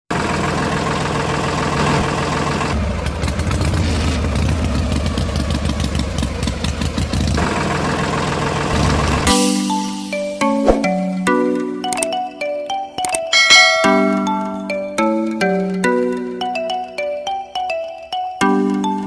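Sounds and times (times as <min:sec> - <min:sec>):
engine running: 0:00.1 - 0:09.3
rapid engine clicking: 0:00.2 - 0:09.3.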